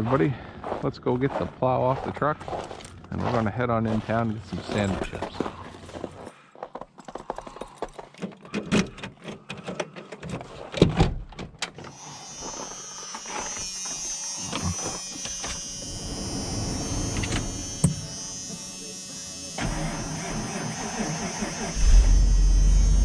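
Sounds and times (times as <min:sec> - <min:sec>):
high electric motor buzz: 0:11.9 - 0:23.0.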